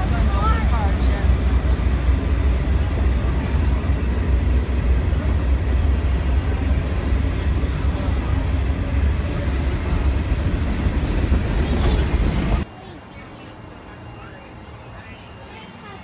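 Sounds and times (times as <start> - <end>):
steel train wheels rumbling on rail: 0.0 - 12.7.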